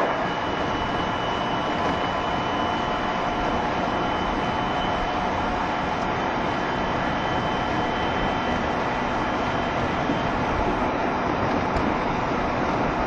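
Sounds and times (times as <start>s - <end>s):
faint high whine: 0.0s - 12.3s
train wheels rumbling on rail: 0.0s - 13.0s.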